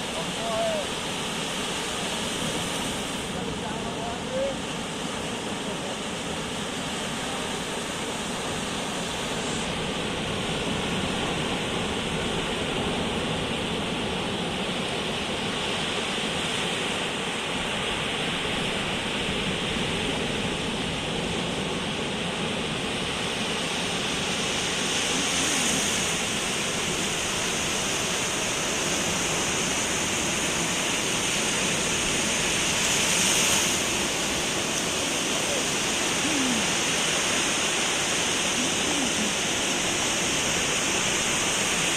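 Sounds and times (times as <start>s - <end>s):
waves breaking on shore: 0.0s - 41.9s.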